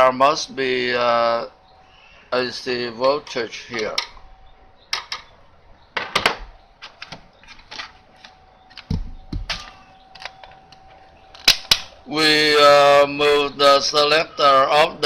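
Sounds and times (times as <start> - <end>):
multimeter probes clicking: 3.0 - 4.2, 6.8 - 12.0
heavier knocks: 8.9 - 9.7.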